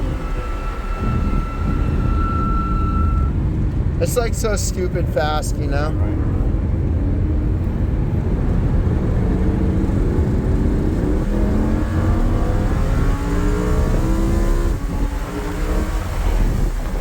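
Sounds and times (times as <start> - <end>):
sports car accelerating: 5.5 - 17.0.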